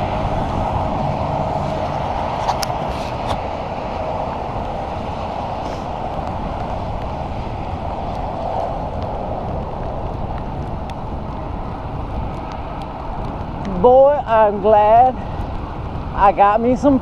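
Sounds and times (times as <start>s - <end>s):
tyres hissing on wet road: 0.0s - 17.0s
wind buffeting microphone: 0.0s - 17.0s.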